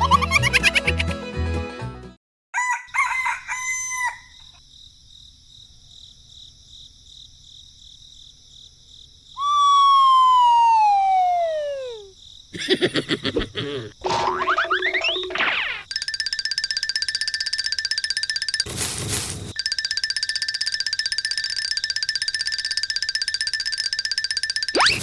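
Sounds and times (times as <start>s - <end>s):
music: 0.0s - 2.2s
rooster crowing: 2.5s - 4.6s.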